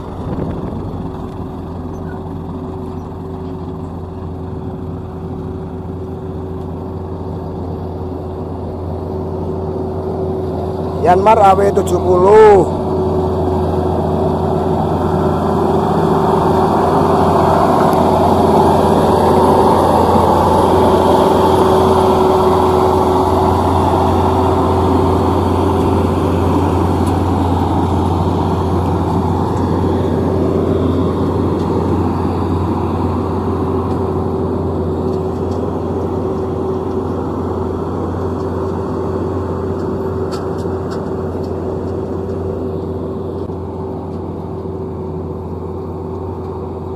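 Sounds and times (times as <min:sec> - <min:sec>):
diesel engine running under load: 0:00.0 - 0:46.9.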